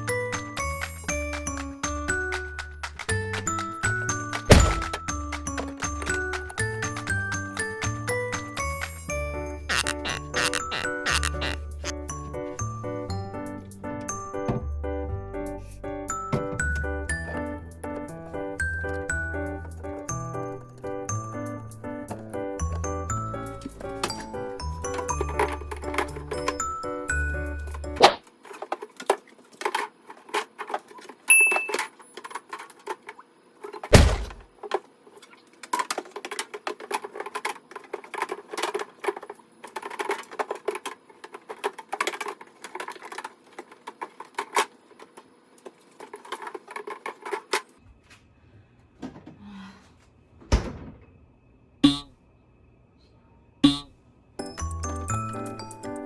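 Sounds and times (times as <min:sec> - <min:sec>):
heavy thud: 0:04.5 - 0:05.0, 0:33.9 - 0:34.5.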